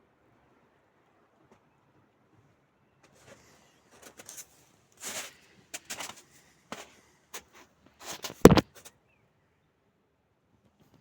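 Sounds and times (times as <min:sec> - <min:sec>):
short rustling noise: 0:03.0 - 0:08.9.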